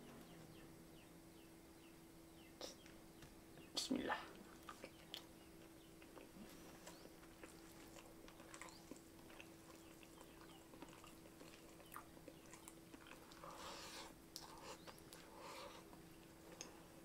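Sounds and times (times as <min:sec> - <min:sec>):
faint steady hum: 0:00.0 - 0:17.0
person chewing: 0:04.4 - 0:17.0.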